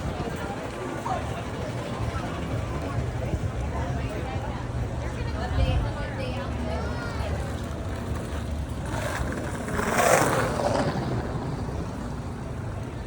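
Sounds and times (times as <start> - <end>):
wind and road noise rumble: 0.0 - 13.0
motor vehicle passing: 7.2 - 13.0.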